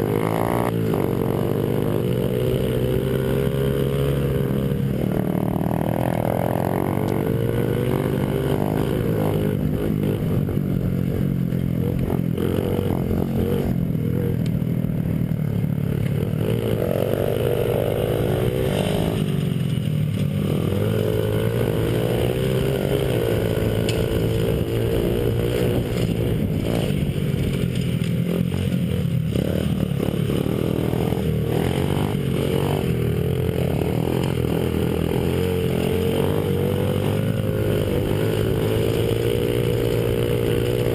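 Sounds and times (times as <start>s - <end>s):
small motorbike engine revving: 0.0s - 15.2s, 15.8s - 40.9s
rattle and clatter: 25.8s - 29.8s.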